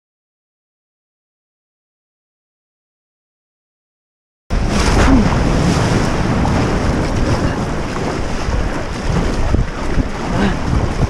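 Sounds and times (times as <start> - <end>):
sea waves and surf: 4.5 - 11.0
wind buffeting microphone: 4.5 - 11.0.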